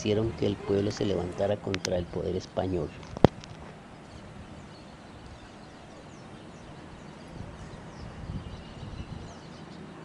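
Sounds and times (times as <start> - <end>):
steady outdoor hiss: 0.0 - 10.0.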